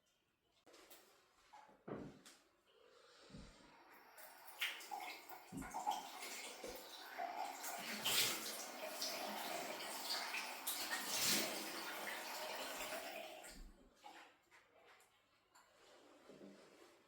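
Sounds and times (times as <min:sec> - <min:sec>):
water running: 0:03.3 - 0:14.2.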